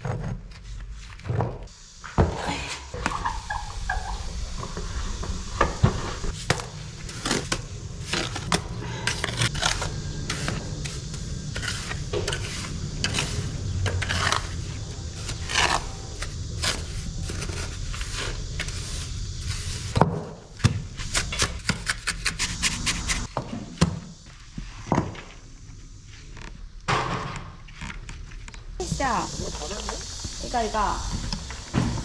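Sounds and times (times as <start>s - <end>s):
hand tool scraping hard surface: 4.6s - 20.0s.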